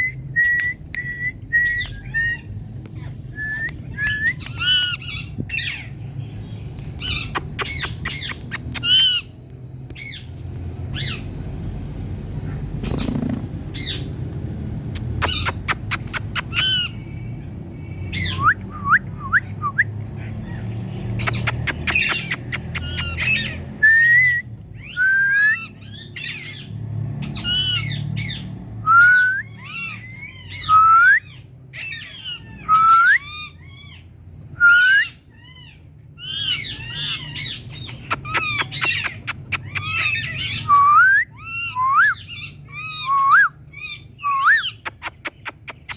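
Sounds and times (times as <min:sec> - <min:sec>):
parrot squawking: 0:04.0 - 0:06.0, 0:07.0 - 0:09.4, 0:15.0 - 0:17.1, 0:21.2 - 0:23.7, 0:24.8 - 0:34.1, 0:34.8 - 0:45.9.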